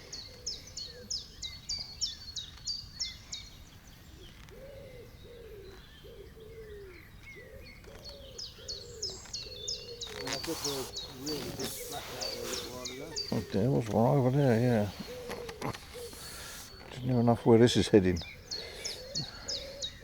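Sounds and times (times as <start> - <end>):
lower bird call: 4.1 - 20.0
high rapid bird call: 10.0 - 20.0.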